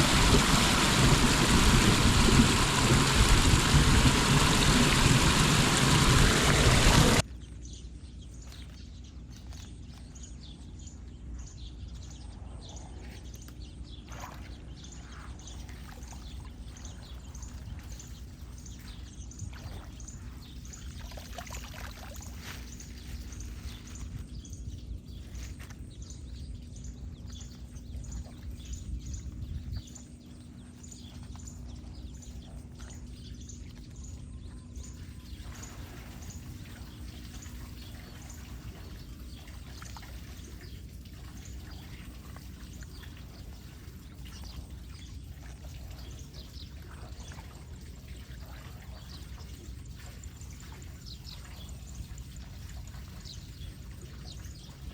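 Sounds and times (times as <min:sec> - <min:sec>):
water pouring down storm drain: 0:00.0 - 0:07.2.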